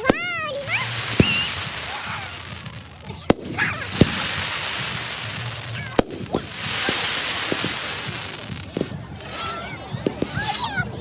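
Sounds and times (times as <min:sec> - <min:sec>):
crackling hiss: 0:00.0 - 0:09.5
fireworks bangs: 0:00.0 - 0:10.9.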